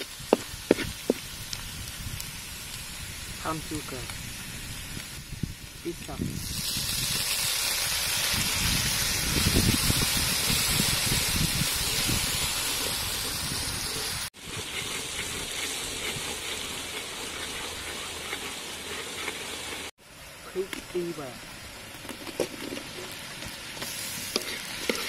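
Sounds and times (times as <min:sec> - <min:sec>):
garlic sizzling in hot oil: 0:00.0 - 0:25.0
metal ladle scraping wok: 0:10.6 - 0:19.9, 0:24.2 - 0:25.0.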